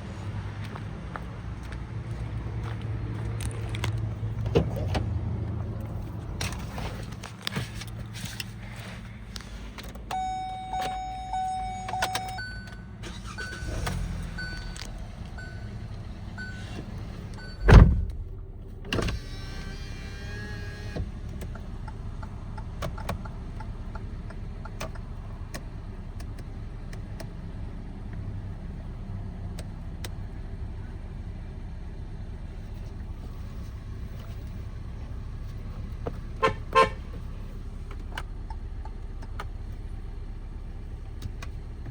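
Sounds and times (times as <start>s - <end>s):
held chime tone: 10.1s - 12.8s
short repeated beeps: 10.1s - 12.8s.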